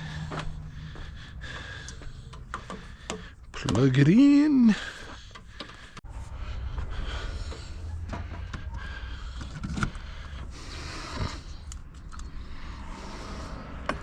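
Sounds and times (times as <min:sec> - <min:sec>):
clicks and dull knocks: 0:01.9 - 0:04.0, 0:05.3 - 0:06.0.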